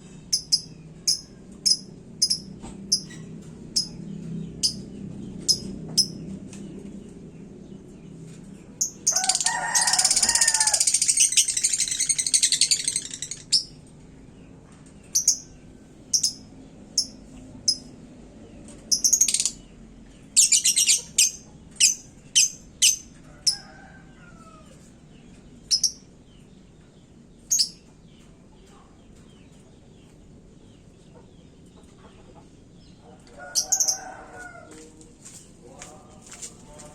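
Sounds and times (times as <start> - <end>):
lovebird chirping and trilling: 0.3 - 4.0, 5.4 - 6.2, 8.8 - 13.8, 15.2 - 15.5, 16.1 - 16.4, 17.0 - 17.9, 18.9 - 19.6, 20.4 - 23.1, 27.5 - 27.8.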